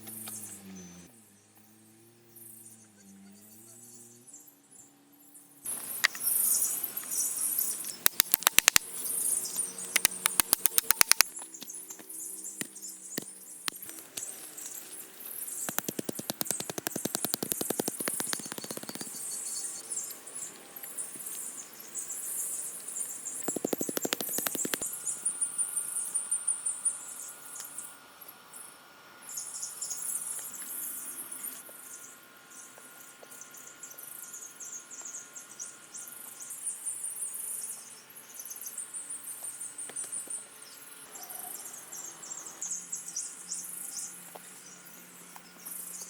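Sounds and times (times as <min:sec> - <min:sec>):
birds chirping: 0:05.7 - 0:11.2, 0:12.3 - 0:20.1, 0:23.0 - 0:25.2
insects chirping: 0:05.7 - 0:11.2, 0:12.3 - 0:20.1, 0:23.0 - 0:25.3
rapid clicking strokes: 0:08.0 - 0:08.8, 0:10.0 - 0:11.3, 0:15.6 - 0:19.4, 0:23.4 - 0:24.9.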